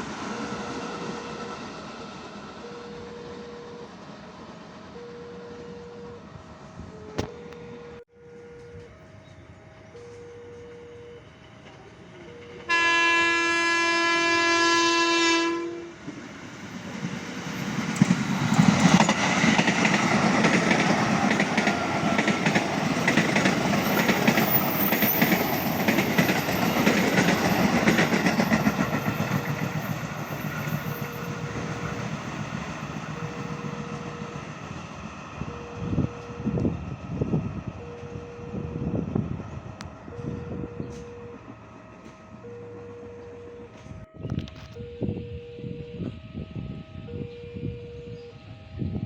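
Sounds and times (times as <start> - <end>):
train rumbling past: 0.0 - 49.0
train horn blast: 12.7 - 16.1.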